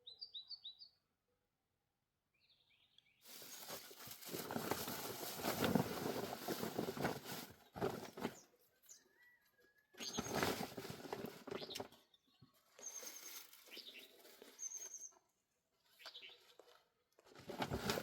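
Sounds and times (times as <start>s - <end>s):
faint bird chirping: 0.0s - 1.4s, 7.6s - 16.8s
rustling and crunching: 3.2s - 8.5s, 10.0s - 12.0s, 16.4s - 18.0s.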